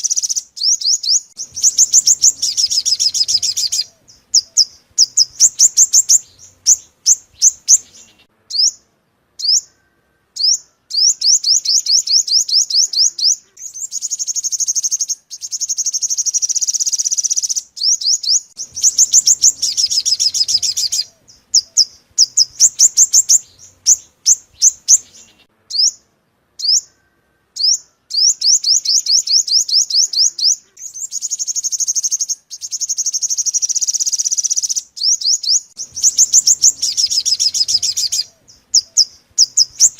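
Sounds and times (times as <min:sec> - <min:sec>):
sunbird song with high chirps and trills: 0:00.0 - 0:39.9.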